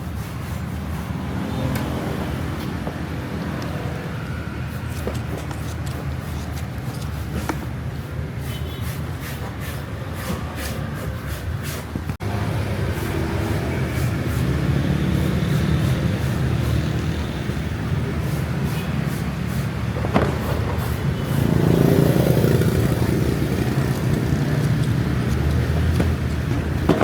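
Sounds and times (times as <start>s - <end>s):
vehicle engine running: 12.2s - 18.5s, 20.0s - 27.0s.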